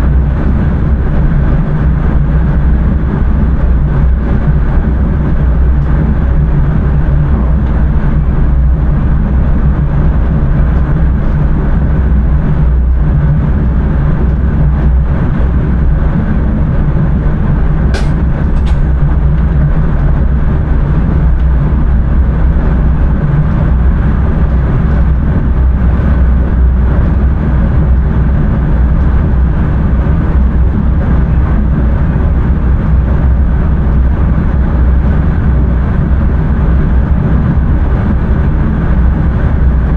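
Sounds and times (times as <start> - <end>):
train wheels rumbling: 0.0 - 33.1.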